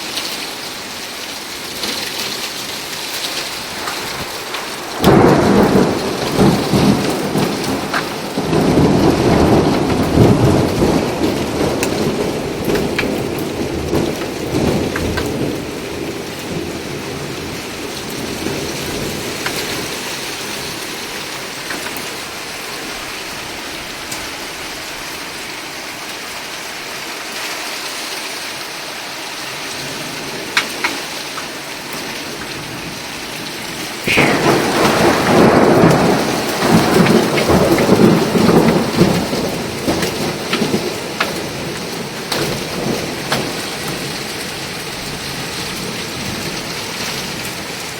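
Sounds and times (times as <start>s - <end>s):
thunderclap: 3.6s - 20.0s, 34.0s - 44.2s
low thunder rumble: 3.6s - 20.7s, 33.7s - 44.1s
heavy rain hissing: 28.9s - 47.9s.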